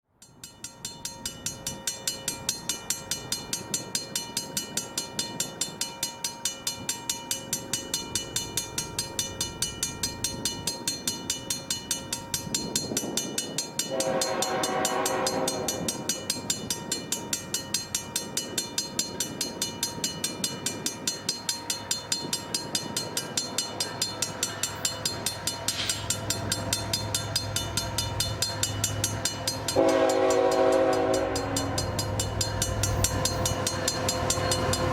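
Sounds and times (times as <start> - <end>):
locomotive horn: 13.9 - 16.1, 29.8 - 32.0
locomotive engine rumble: 21.8 - 34.9.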